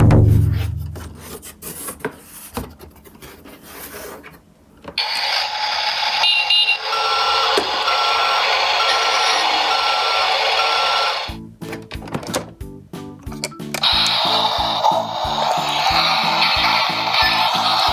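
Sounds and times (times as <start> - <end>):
toy truck engine noise: 5.0 - 11.4, 13.8 - 17.9
plastic clicks and rattles: 11.6 - 12.6.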